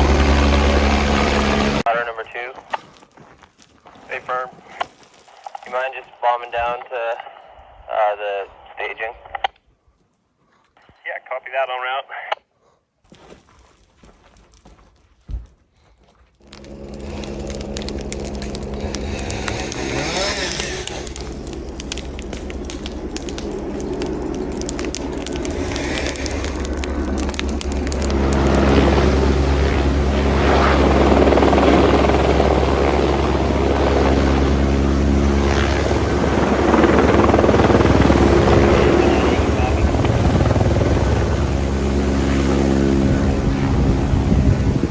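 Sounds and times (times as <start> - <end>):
helicopter running: 0.0 - 2.0, 16.4 - 44.9.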